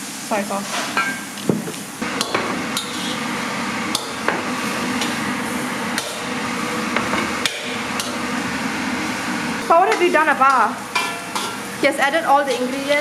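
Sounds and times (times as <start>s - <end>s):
food sizzling in a frying pan: 0.0s - 13.0s
metal spatula knocking on pan: 9.9s - 11.6s.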